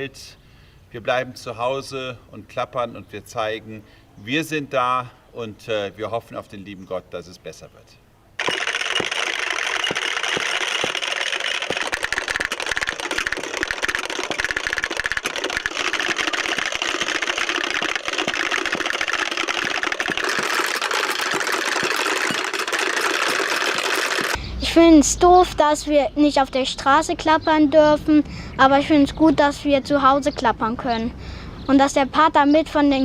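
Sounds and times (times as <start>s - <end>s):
wooden rattles clattering: 8.4s - 24.4s.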